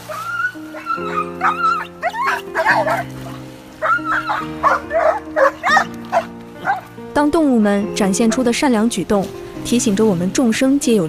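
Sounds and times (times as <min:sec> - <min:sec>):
dogs barking and yelping: 0:00.0 - 0:06.9
background music with held chords: 0:00.0 - 0:11.0.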